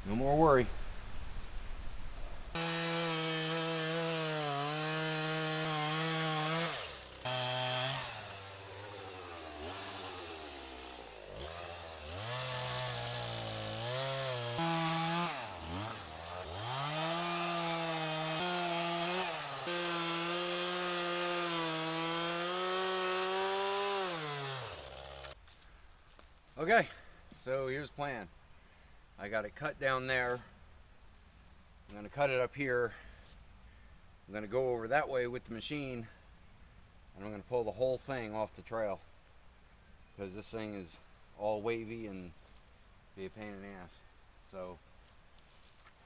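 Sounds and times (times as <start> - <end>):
chainsaw cutting wood: 2.5 - 25.4.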